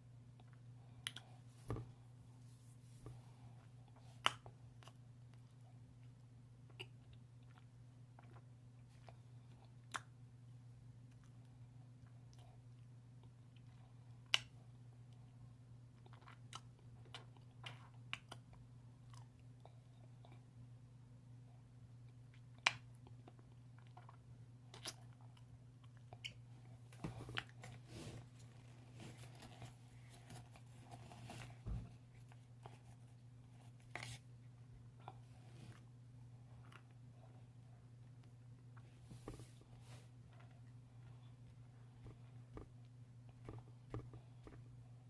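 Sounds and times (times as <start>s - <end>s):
steady low hum: 23.4s - 45.0s.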